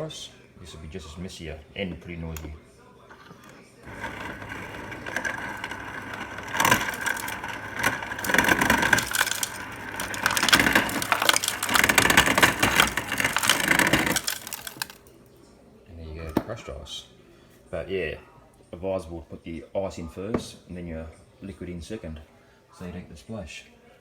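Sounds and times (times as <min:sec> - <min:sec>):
ice crusher grinding: 0:03.1 - 0:15.1
crushed ice clattering: 0:03.8 - 0:15.1.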